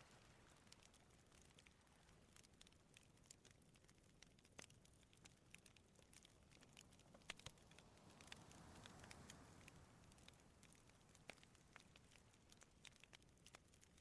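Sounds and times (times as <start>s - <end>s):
sea waves washing on shore: 0.0s - 2.8s, 6.0s - 13.2s
campfire crackling and popping: 0.0s - 14.0s.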